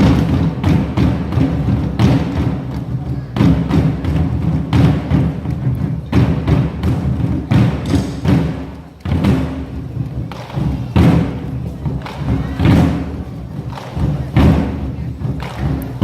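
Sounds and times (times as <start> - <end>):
drums beaten with sticks: 0.0 - 16.0.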